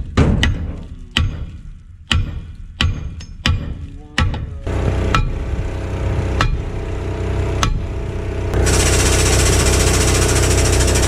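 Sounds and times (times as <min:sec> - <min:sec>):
sharp metal knocks: 0:00.0 - 0:04.5, 0:05.1 - 0:05.4, 0:06.4 - 0:06.7, 0:07.6 - 0:07.9
heavy vehicle engine running: 0:04.6 - 0:11.0.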